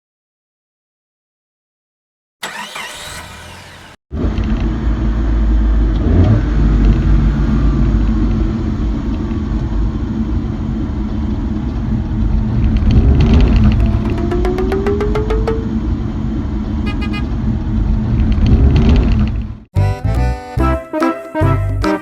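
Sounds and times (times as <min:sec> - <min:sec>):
vehicle-like rumble: 0:04.2 - 0:19.6
short sweeping sound: 0:13.4 - 0:16.0.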